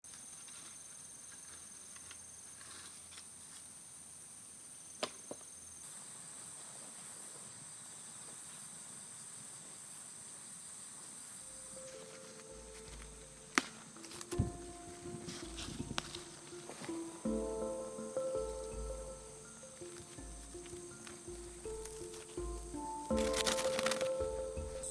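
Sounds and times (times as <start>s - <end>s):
insects trilling: 0.1s - 24.9s
insect pulsed buzz: 5.8s - 24.9s
musical notes: 11.3s - 24.9s
sharp clicks: 19.8s - 24.9s.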